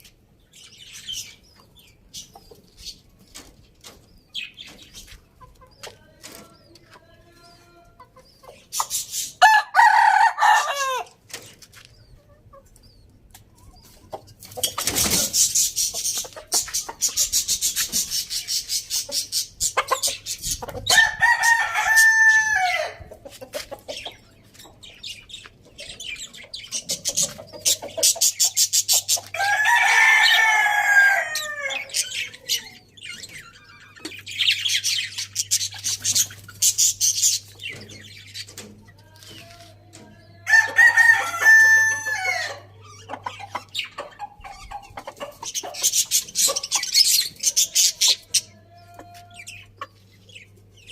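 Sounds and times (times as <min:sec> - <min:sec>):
chickens clucking: 0:00.0 - 0:50.9
rooster crowing: 0:09.4 - 0:11.2, 0:20.9 - 0:23.0, 0:29.4 - 0:32.0, 0:40.5 - 0:42.7.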